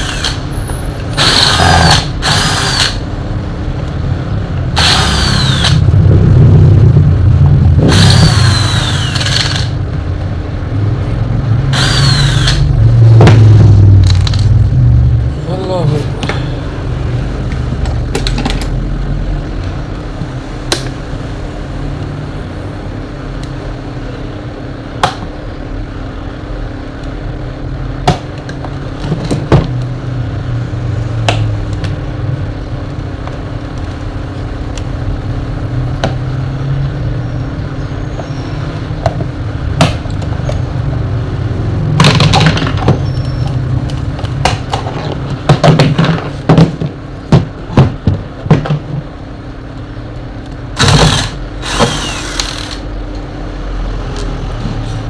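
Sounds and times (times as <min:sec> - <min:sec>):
tools clicking on metal parts: 0:07.9 - 0:09.8, 0:50.8 - 0:52.9.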